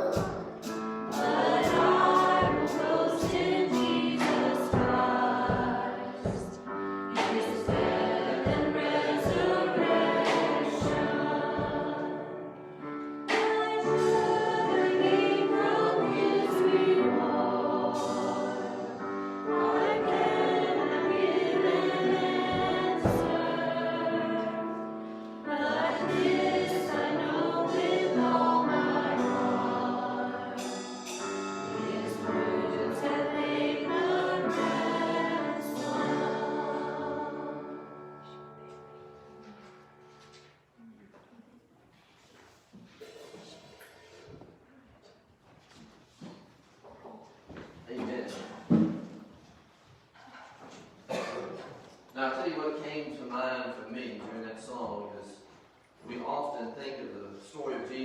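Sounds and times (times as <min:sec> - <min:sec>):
group singing a worship song: 0:00.0 - 0:38.5, 0:50.8 - 0:51.8
musical accompaniment: 0:00.0 - 0:41.0.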